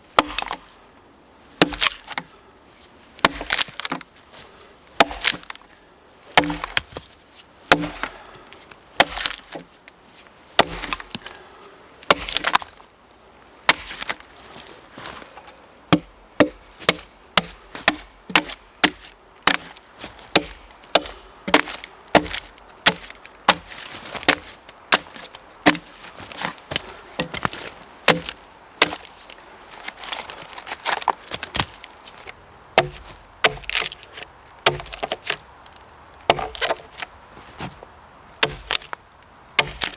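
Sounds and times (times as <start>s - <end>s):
axe chopping wood: 0.2s - 0.7s, 1.6s - 2.4s, 3.2s - 4.1s, 5.0s - 5.6s, 6.4s - 7.0s, 7.7s - 8.4s, 9.0s - 9.7s, 10.6s - 11.4s, 12.1s - 12.8s, 13.7s - 14.2s, 15.9s - 29.1s, 31.0s - 35.4s, 36.2s - 37.2s, 38.4s - 39.0s, 39.6s - 39.9s.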